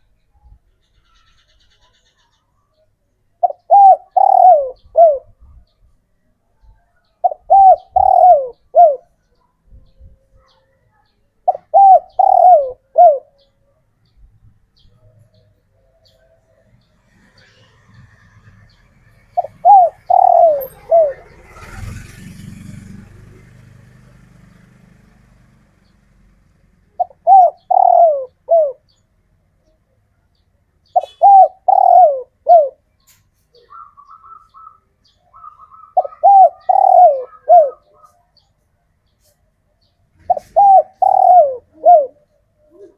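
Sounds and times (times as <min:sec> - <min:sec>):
dove cooing: 0:03.4 - 0:05.6, 0:07.2 - 0:09.2, 0:11.4 - 0:13.6, 0:18.4 - 0:23.1, 0:26.9 - 0:29.0, 0:30.9 - 0:33.0, 0:33.6 - 0:38.4, 0:40.2 - 0:42.9.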